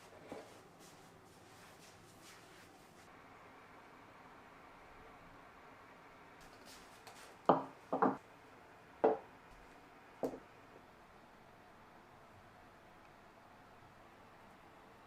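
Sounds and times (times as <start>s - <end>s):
dishes knocking on wooden table: 7.5s - 8.2s, 9.0s - 9.2s.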